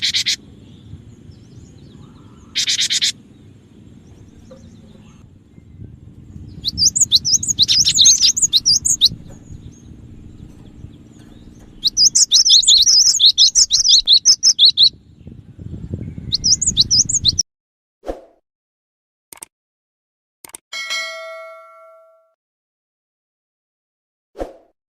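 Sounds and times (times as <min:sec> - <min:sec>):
bird chirping rapidly: 0:00.0 - 0:17.4
low steady hum: 0:00.0 - 0:17.4.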